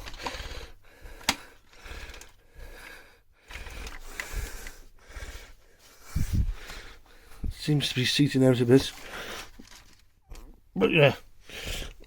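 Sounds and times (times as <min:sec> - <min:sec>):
plastic parts clicking and rattling: 0:00.0 - 0:00.6, 0:01.2 - 0:02.4, 0:03.4 - 0:04.8, 0:08.9 - 0:10.1.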